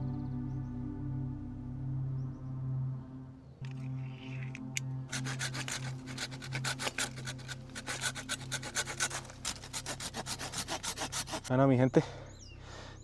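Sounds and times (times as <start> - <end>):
hand saw cutting branch: 3.7 - 11.5.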